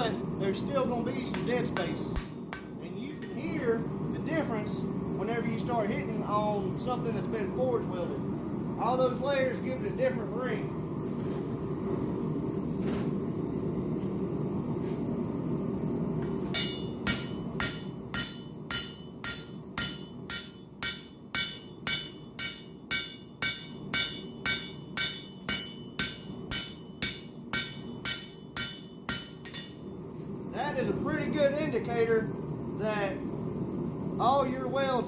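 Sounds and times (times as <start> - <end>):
steady low hum: 0.0 - 35.0
hammer ringing on steel: 16.5 - 29.9.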